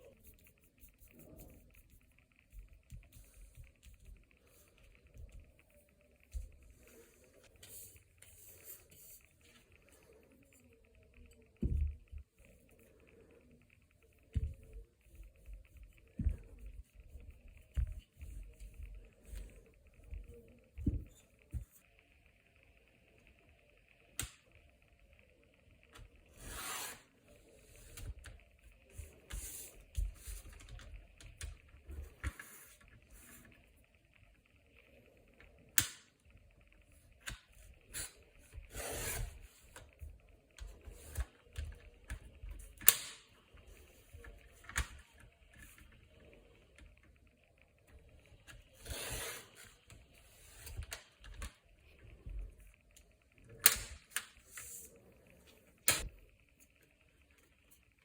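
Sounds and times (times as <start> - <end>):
small clicks and taps: 24.1 - 24.8, 35.4 - 36.4, 39.7 - 47.2, 49.8 - 54.7.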